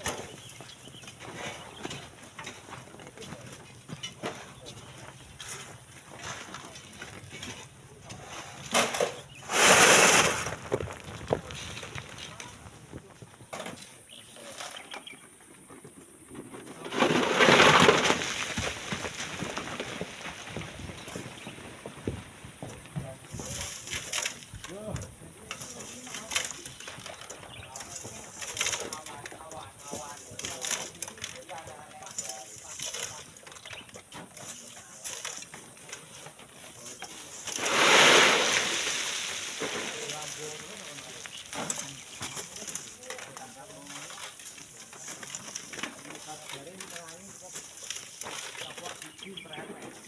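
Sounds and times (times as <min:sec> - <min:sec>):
sand and stones sliding: 0:00.0 - 0:50.0
small stones clattering: 0:08.4 - 0:13.4, 0:16.6 - 0:21.6, 0:25.5 - 0:50.0.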